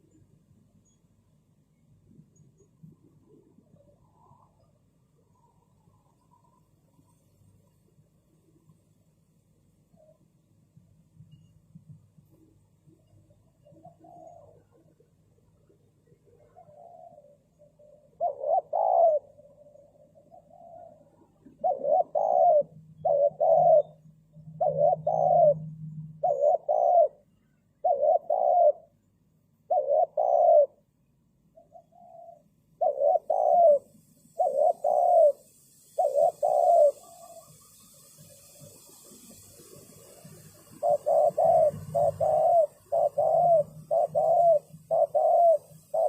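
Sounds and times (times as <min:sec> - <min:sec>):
dove cooing: 0:12.9 - 0:27.2, 0:27.8 - 0:29.0, 0:29.6 - 0:30.8, 0:31.6 - 0:46.0.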